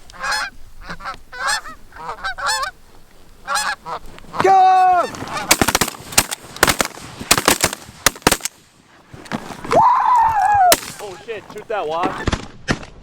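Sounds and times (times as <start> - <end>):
shotgun blasts: 5.3 - 8.7, 10.7 - 11.4.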